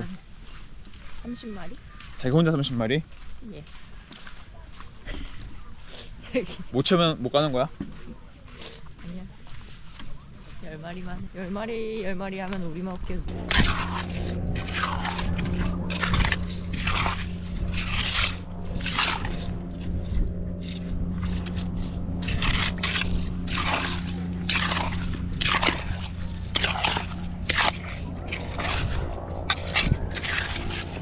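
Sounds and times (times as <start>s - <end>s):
steady low hum: 3.0s - 31.0s
rake scraping through wet sand: 13.3s - 31.0s.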